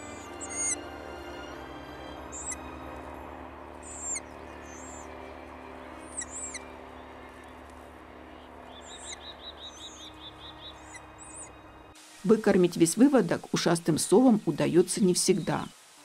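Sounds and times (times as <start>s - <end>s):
low hum: 0.0s - 15.7s
high thin bird chirps: 3.8s - 5.0s, 6.1s - 6.7s, 8.7s - 11.5s.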